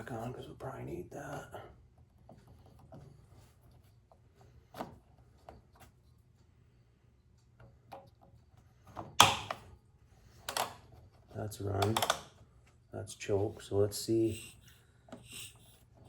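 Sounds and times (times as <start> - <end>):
light clicks and knocks: 11.6 - 12.8.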